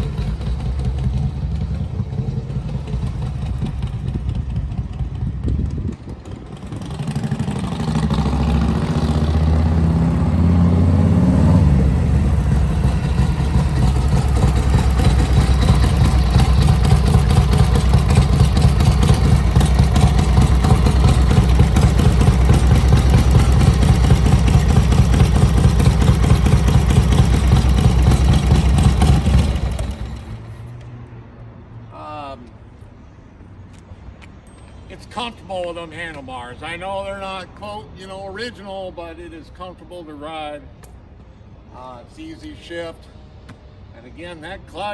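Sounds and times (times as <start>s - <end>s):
motorcycle engine running: 0.0s - 10.2s, 11.6s - 30.6s.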